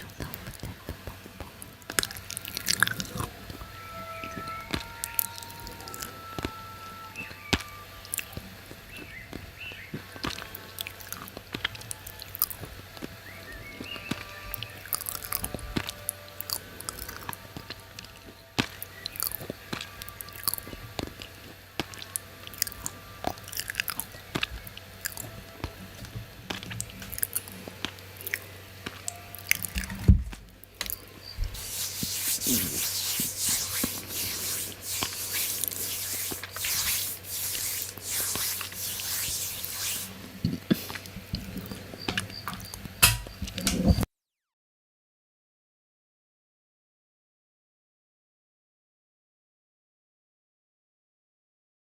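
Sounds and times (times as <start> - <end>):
steady hiss: 30.9 - 42.0.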